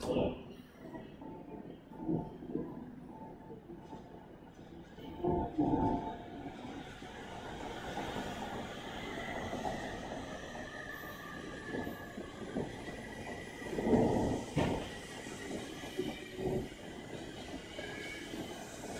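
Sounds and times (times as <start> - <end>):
train rumble: 0.0 - 18.9
electric train running with whine: 3.9 - 18.9.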